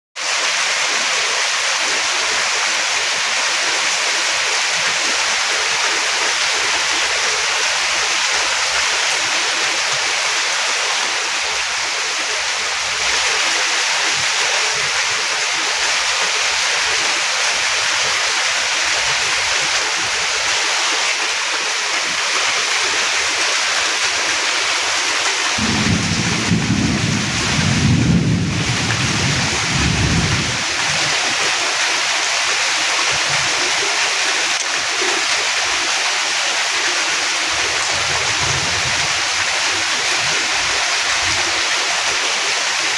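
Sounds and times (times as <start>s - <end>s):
heavy rain falling: 0.2s - 42.9s
low pulsing rumble: 25.6s - 30.6s.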